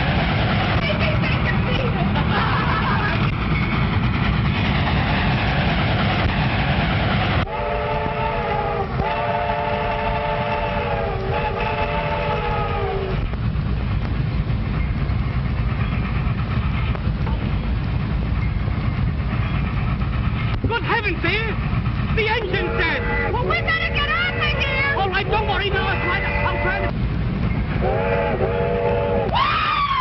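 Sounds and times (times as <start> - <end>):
train rumble and clatter: 0.0 - 30.0
train whistle blasts: 7.4 - 13.1, 22.6 - 26.9, 27.8 - 29.4.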